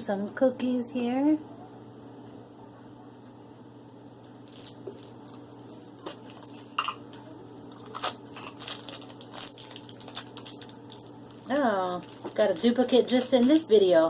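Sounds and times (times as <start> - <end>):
plastic packaging crinkling: 4.4 - 13.9.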